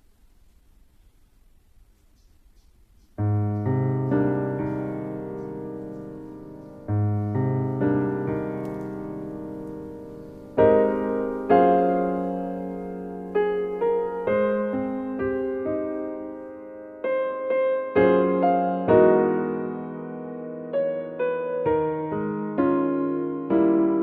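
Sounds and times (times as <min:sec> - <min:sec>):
slow piano chords: 0:03.1 - 0:24.0.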